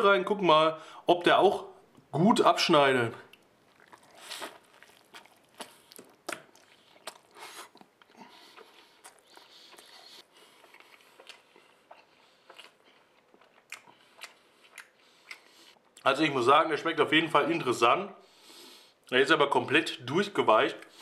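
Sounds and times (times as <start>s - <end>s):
person chewing: 3.3s - 16.0s.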